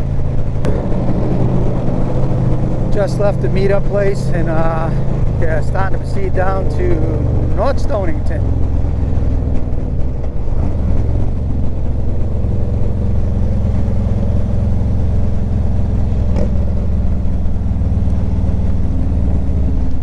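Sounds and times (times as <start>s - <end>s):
motorcycle engine droning: 0.0s - 20.0s.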